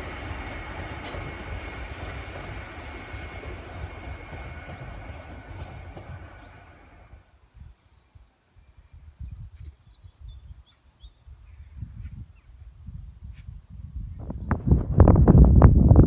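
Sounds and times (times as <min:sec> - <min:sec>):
train rumble with high whine: 0:00.0 - 0:07.3.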